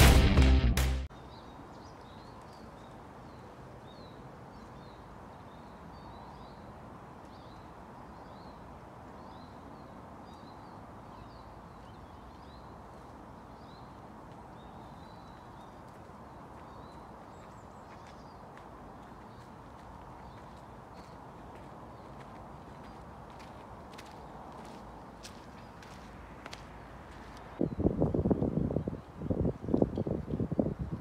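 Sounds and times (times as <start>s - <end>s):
intro music: 0.0s - 1.1s.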